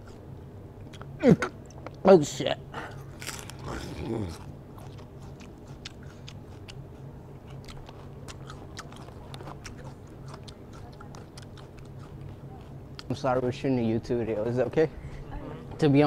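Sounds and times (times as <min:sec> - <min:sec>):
person chewing crunchy food: 0:03.0 - 0:13.1.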